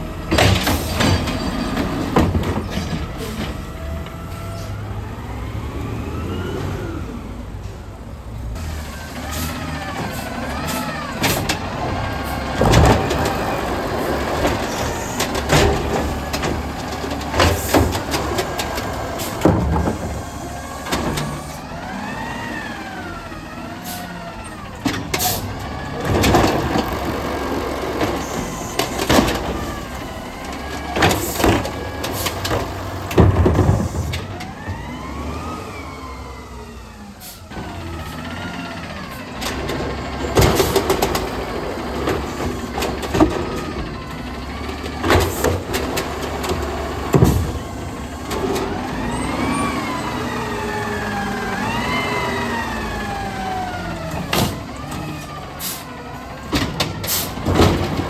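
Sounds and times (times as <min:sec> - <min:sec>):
loud metal clanks and bangs: 0:00.0 - 0:04.1, 0:09.3 - 0:21.6, 0:39.2 - 0:49.7, 0:53.9 - 0:58.0
garbage truck engine whining: 0:00.0 - 0:58.0.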